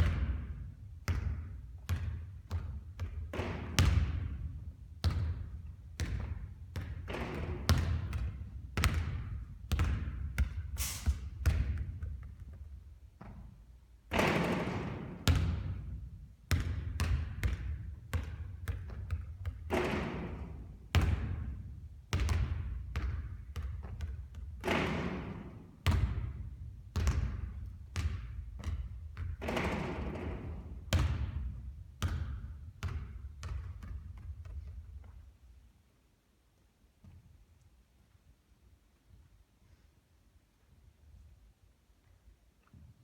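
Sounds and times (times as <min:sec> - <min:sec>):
basketball hitting hoop: 0:00.0 - 0:12.4, 0:14.1 - 0:21.6, 0:22.2 - 0:34.3
basketball bouncing on court: 0:00.0 - 0:35.3.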